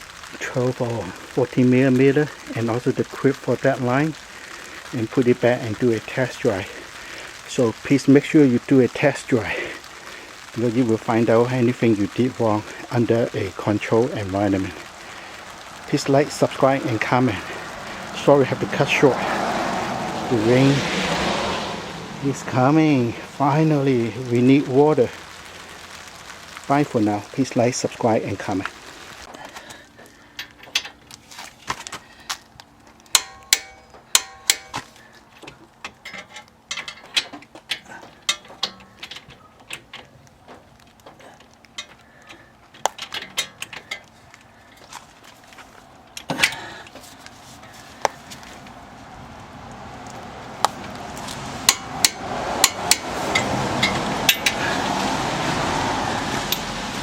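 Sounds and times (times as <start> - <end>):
hiss: 6.6 - 7.4.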